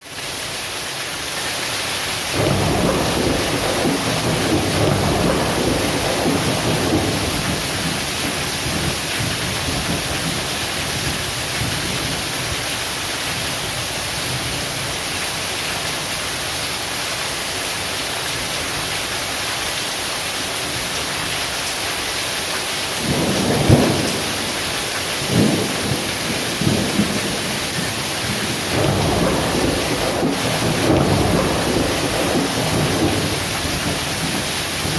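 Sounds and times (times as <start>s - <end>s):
heavy rain pouring: 0.0s - 34.9s
sharp thunder claps: 2.4s - 11.8s, 23.0s - 34.9s
thunder rumbling: 2.4s - 12.2s, 23.0s - 34.9s.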